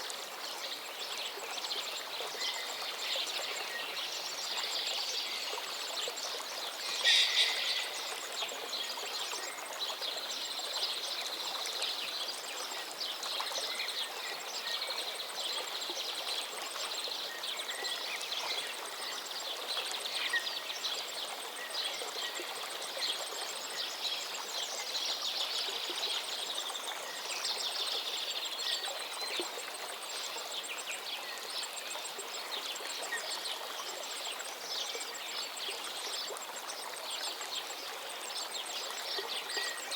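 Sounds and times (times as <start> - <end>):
stream flowing: 0.0 - 39.9
songbirds chirping and trilling: 2.2 - 10.1.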